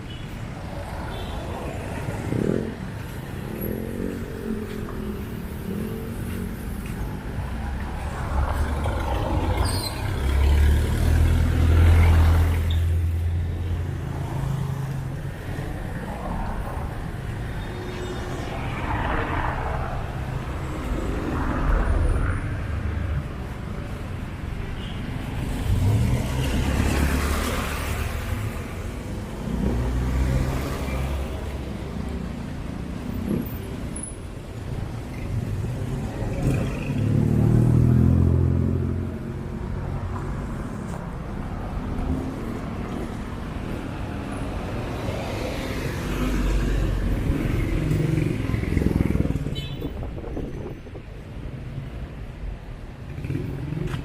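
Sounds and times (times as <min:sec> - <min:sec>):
cars and motorcycles passing: 0:00.0 - 0:54.0.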